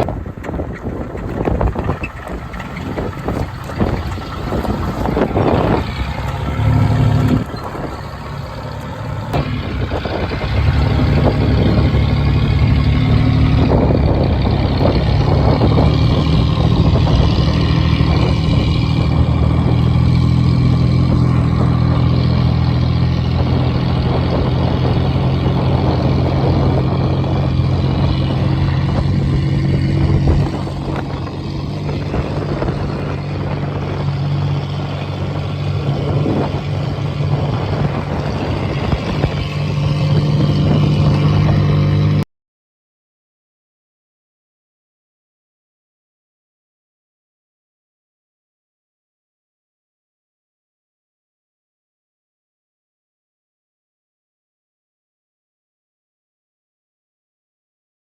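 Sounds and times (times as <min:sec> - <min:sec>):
vehicle engine running: 0:00.0 - 0:42.2
road noise: 0:00.0 - 0:42.3.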